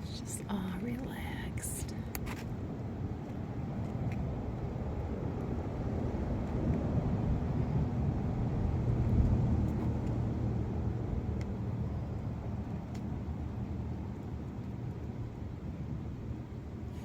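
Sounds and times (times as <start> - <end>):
passing motor vehicle rumble: 2.2 - 15.4.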